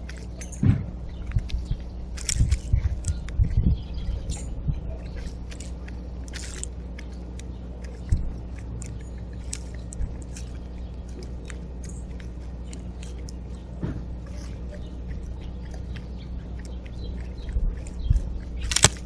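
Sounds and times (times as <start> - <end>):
birds ticking and chipping: 0.0 - 19.0
steady low hum: 0.0 - 19.0.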